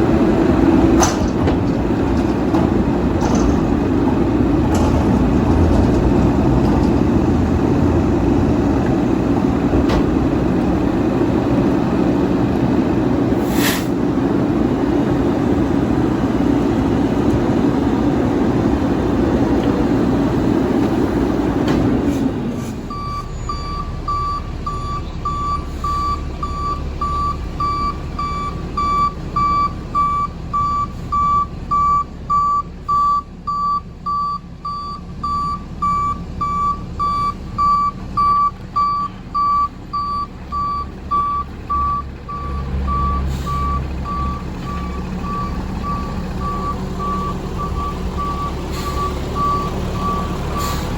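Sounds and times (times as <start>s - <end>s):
loud truck engine running: 0.0s - 50.9s
truck back-up alarm beeping: 22.8s - 50.9s.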